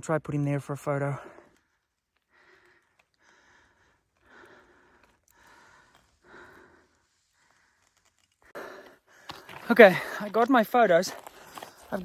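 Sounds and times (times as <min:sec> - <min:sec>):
man breathing faintly: 0:01.2 - 0:10.3.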